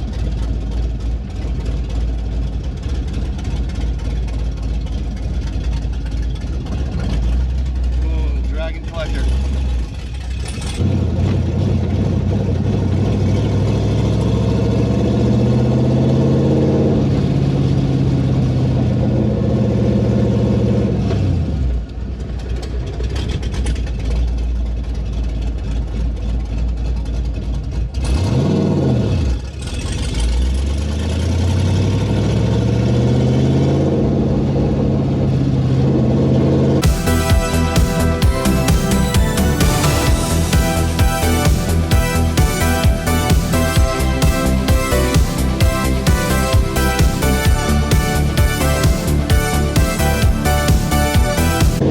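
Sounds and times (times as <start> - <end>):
loud car engine revving: 6.6 - 21.9, 27.9 - 51.9.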